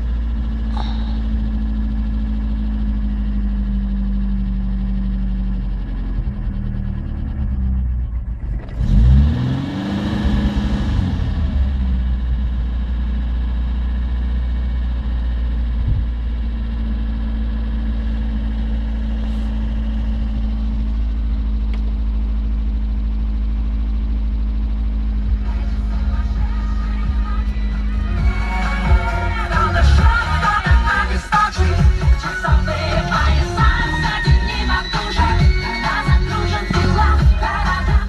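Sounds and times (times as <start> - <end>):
petrol engine idling: 0.0 - 9.2, 10.8 - 38.0.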